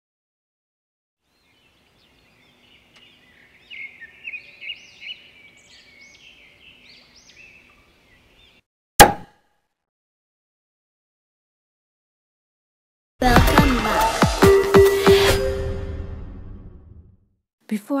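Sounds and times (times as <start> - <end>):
birds chirping: 1.2 - 8.6
sharp loud bang: 9.0 - 9.3.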